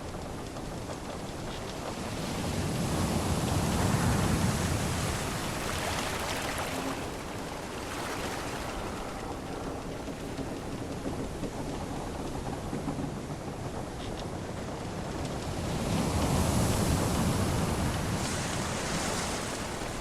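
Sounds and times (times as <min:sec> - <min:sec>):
sea waves washing: 0:00.0 - 0:20.0.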